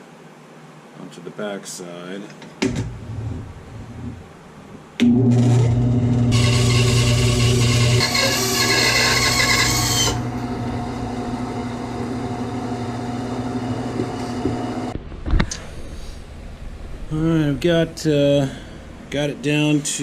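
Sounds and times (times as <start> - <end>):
power tool cutting wood: 5.0 - 14.9
woodworking machine motor hum: 5.0 - 15.0.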